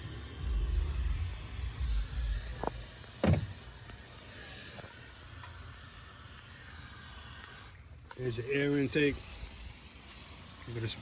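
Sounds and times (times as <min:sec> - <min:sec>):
sharp knocks: 0:03.2 - 0:03.5.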